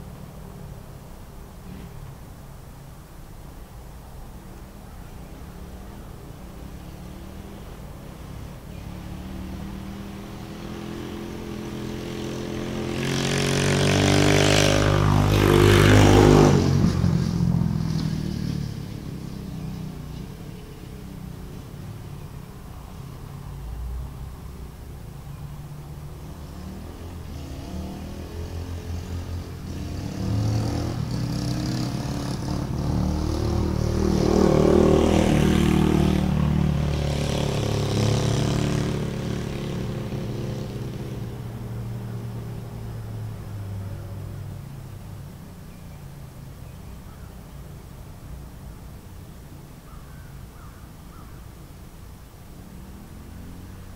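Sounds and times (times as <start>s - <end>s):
dirt bike engine revving past: 6.6s - 21.9s, 26.0s - 44.6s, 52.6s - 53.9s.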